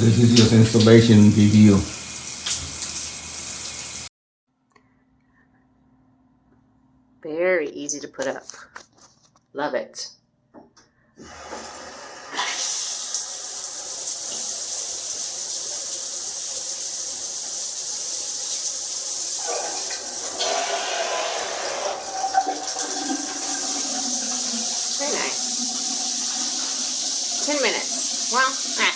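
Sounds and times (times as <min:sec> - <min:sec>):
shower head spraying water: 0:00.0 - 0:04.1, 0:11.3 - 0:28.9.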